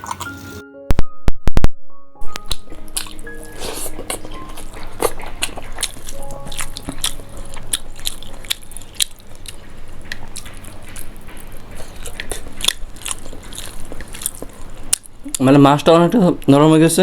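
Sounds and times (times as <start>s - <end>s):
wet chewing and lip smacking: 2.3s - 16.5s.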